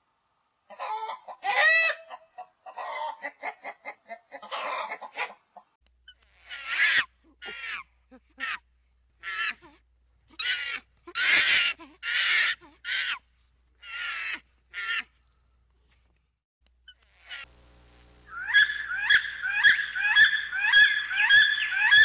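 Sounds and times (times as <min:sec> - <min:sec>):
animal harsh calls: 0:18.3 - 0:22.0.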